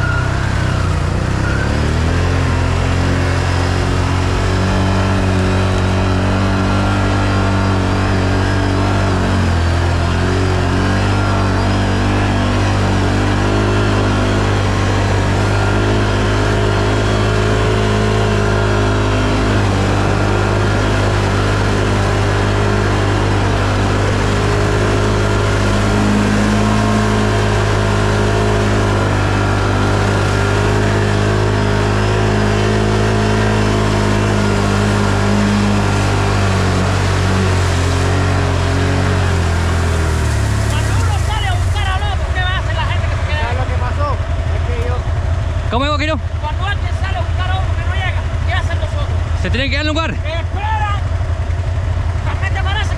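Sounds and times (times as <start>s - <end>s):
atv engine running: 0.0s - 52.9s.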